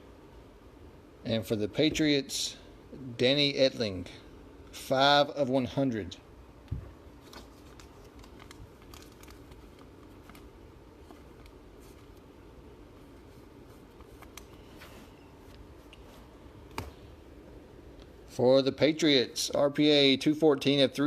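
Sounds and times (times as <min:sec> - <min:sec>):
low room hum: 0:00.0 - 0:21.0
trading cards clicking and rustling: 0:07.2 - 0:12.2, 0:13.8 - 0:14.8.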